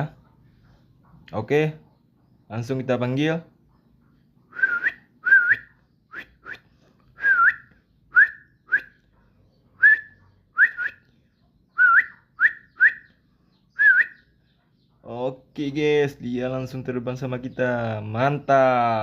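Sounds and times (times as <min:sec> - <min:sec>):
person whistling: 0:04.5 - 0:08.9.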